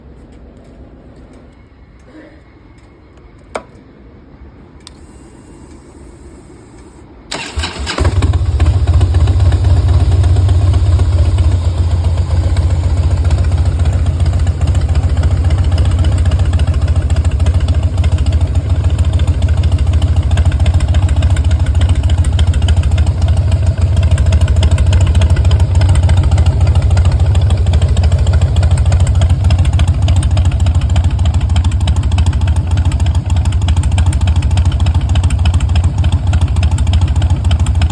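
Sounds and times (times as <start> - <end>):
motorcycle starter cranking: 6.8 - 9.0
motorcycle engine idling: 7.3 - 37.9.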